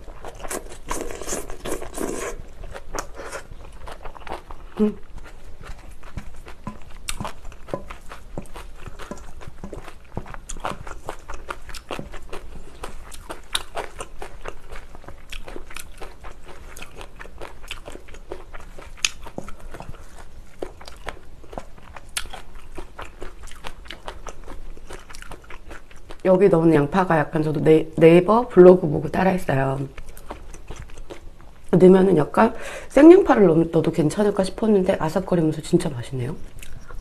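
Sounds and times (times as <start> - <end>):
crunchy chewing: 0.0 - 26.3, 29.9 - 31.7
chopsticks and spoon stirring rice: 5.2 - 14.8.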